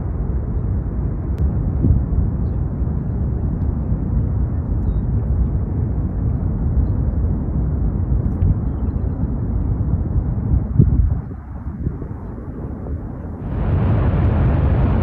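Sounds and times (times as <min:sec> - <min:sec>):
lava fountain roaring: 0:12.7 - 0:15.0.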